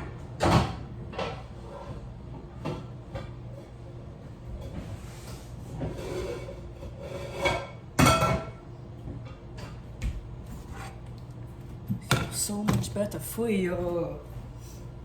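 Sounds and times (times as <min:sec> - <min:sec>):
cookware rubbing and scraping: 0:04.7 - 0:07.8, 0:10.5 - 0:11.0.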